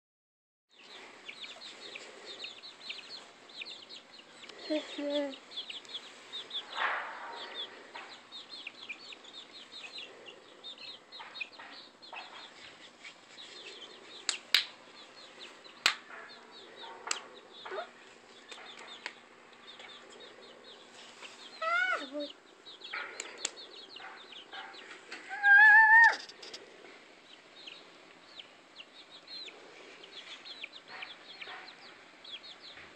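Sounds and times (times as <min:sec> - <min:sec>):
chickens clucking: 0:00.8 - 0:32.9
chicks peeping: 0:00.8 - 0:32.9
rustle: 0:11.2 - 0:32.9.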